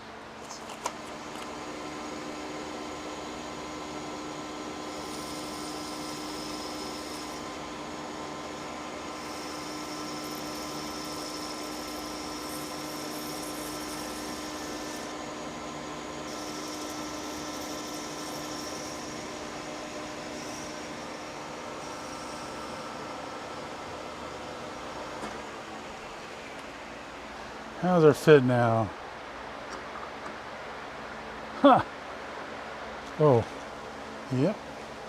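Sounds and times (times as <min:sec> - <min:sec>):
metal lathe motor hum: 0:01.0 - 0:27.2
cutting tool hiss: 0:03.5 - 0:23.2.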